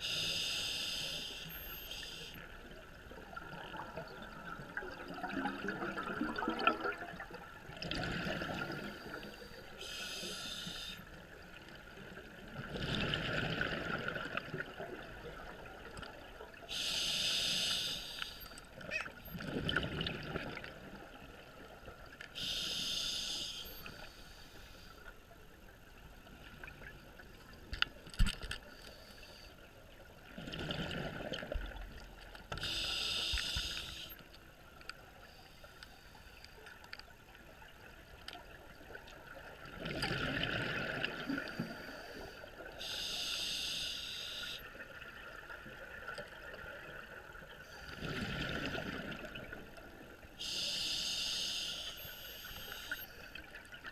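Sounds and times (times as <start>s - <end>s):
regulator hissing inhalation: 0.0s - 2.4s, 9.0s - 11.1s, 16.7s - 18.6s, 22.4s - 24.9s, 32.6s - 34.2s, 41.8s - 44.6s, 50.4s - 53.2s
gurgling exhaled bubbles: 3.2s - 9.2s, 12.5s - 15.7s, 19.4s - 20.9s, 39.6s - 41.6s, 47.9s - 49.6s.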